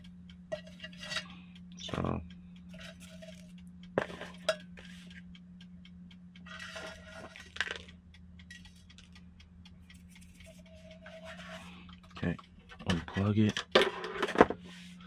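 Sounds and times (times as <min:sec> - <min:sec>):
steady low hum: 0:00.0 - 0:15.0
dishes and utensils clinking: 0:00.5 - 0:01.3, 0:04.0 - 0:04.8.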